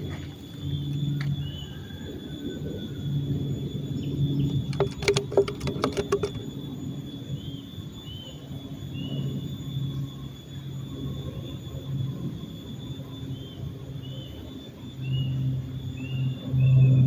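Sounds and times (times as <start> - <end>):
sharp clicks: 4.6 - 6.5.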